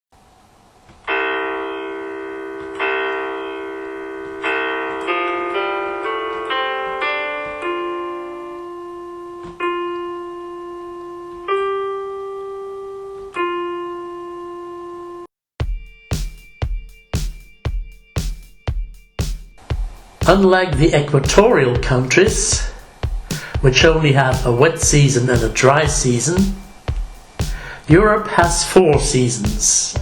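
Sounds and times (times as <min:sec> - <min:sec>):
solo piano music: 0:01.2 - 0:15.3.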